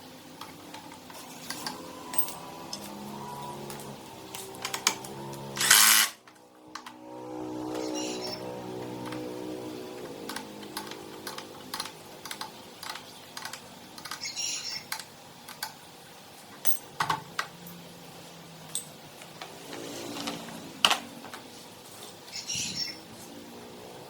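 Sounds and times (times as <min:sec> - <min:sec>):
hard objects clicking and tapping: 0:03.6 - 0:07.0, 0:08.8 - 0:15.8.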